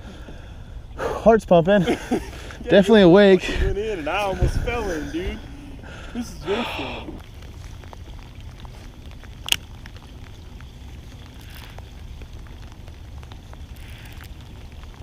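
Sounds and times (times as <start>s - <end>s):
faint crackles and ticks: 0.0s - 15.0s
wind rumbling on microphone: 3.2s - 15.0s.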